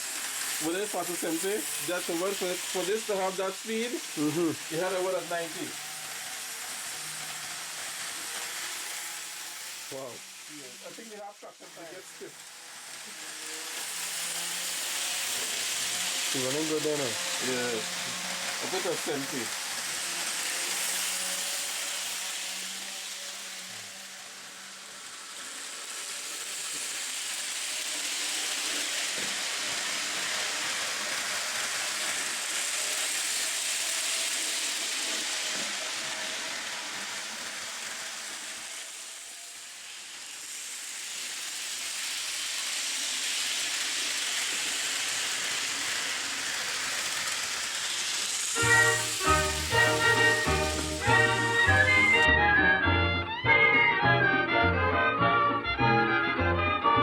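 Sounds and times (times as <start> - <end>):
model train rolling: 0.0 - 57.0
swing music: 48.6 - 57.0.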